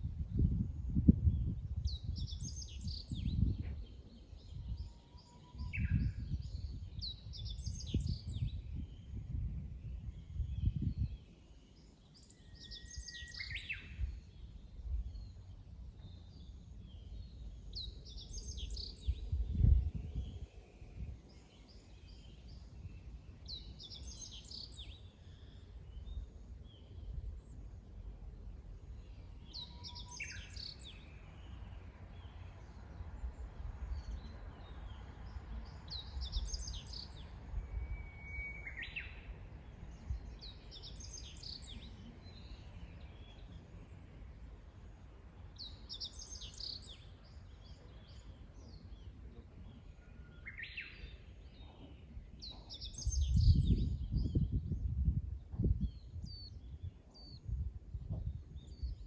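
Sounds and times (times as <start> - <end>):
bird whistle: 37.7 - 39.1.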